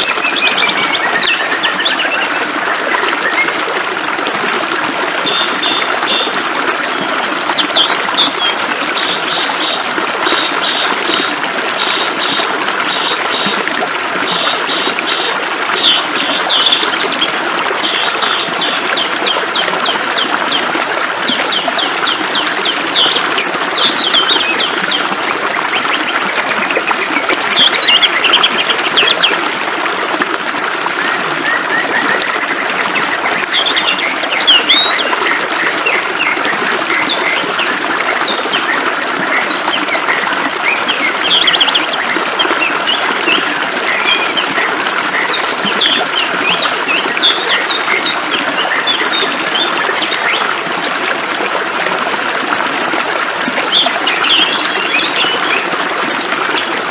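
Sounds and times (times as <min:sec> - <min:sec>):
birds chirping and trilling: 0:05.2 - 0:13.6, 0:14.2 - 0:20.3, 0:53.4 - 0:55.6.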